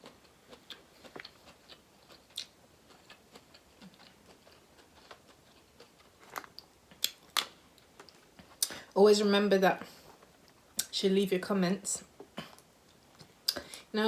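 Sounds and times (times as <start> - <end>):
person chewing food: 0.0 - 8.8, 12.1 - 13.9.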